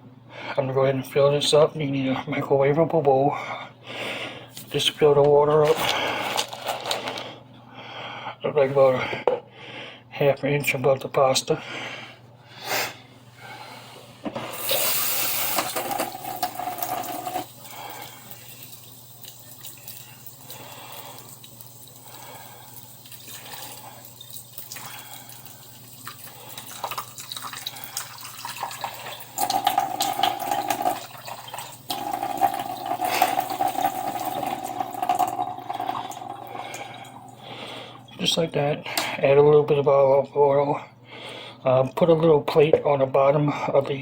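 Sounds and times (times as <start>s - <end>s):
tap water filling a bowl: 14.7s - 37.4s.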